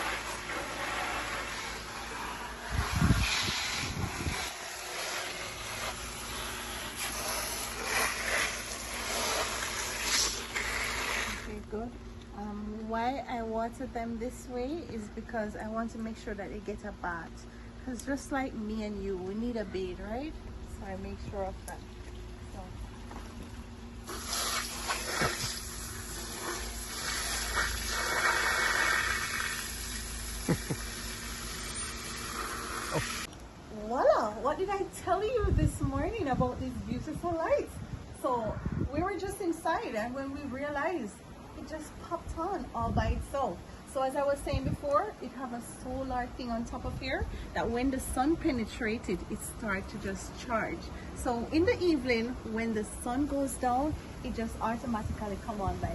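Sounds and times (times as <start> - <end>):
water splashing onto plants: 0.0 - 11.5, 24.0 - 33.3.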